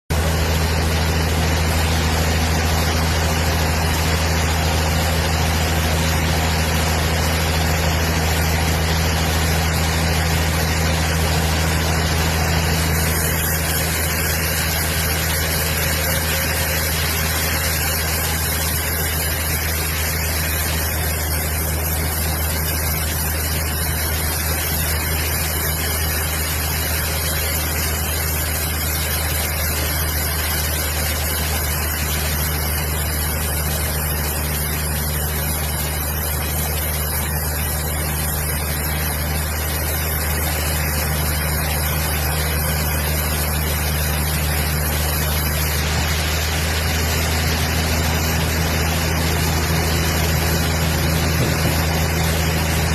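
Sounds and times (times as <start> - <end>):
large engine humming: 0.1 - 26.4, 27.6 - 52.9.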